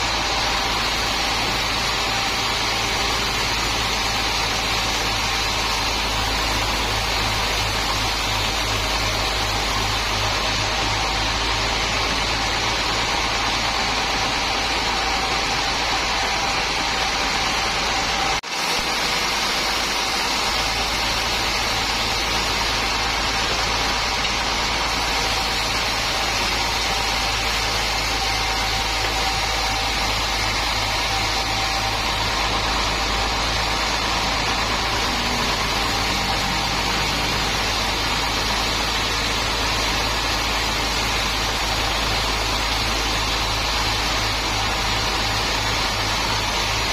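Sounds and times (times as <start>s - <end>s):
sawmill machinery drone: 0.0s - 46.9s.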